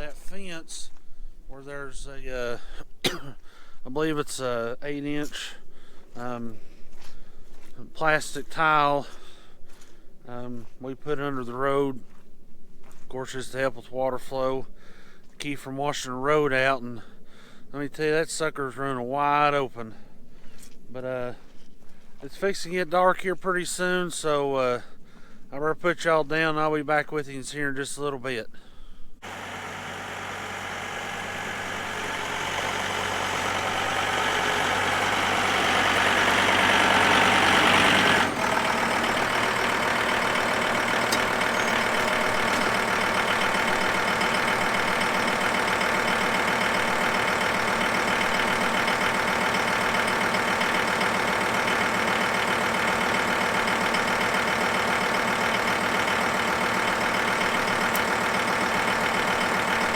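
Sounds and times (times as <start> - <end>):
tractor engine running: 29.2 - 59.9.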